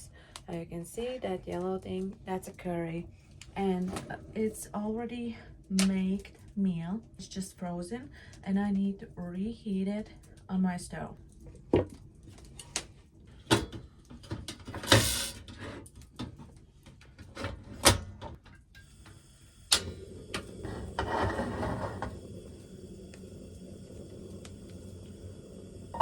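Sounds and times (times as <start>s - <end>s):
gas stove hissing: 14.7s - 15.8s, 17.5s - 26.0s.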